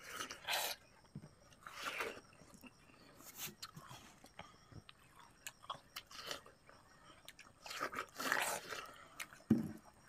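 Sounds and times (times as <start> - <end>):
watermelon being chewed: 0.0 - 10.0.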